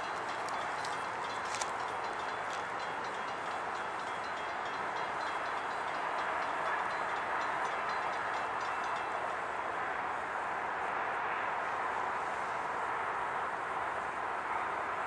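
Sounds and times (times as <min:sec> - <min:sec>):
faint high ticks and squeaks: 0:00.0 - 0:09.2.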